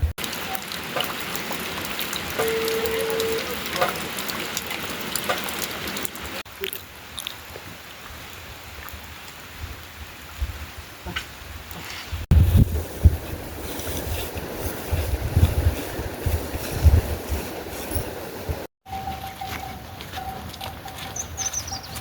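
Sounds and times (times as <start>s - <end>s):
rain falling: 0.0s - 11.8s
drips ticking: 0.2s - 7.4s.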